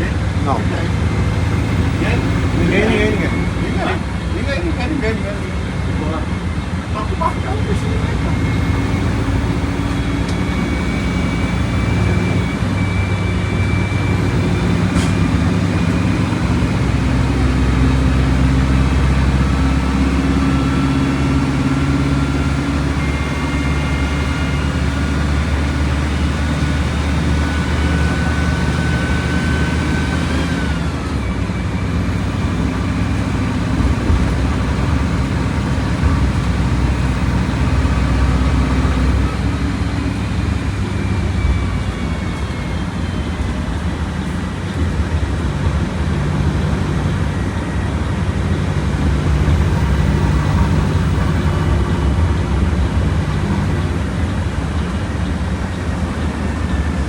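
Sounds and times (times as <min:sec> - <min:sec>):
bus engine running: 0:00.0 - 0:57.0.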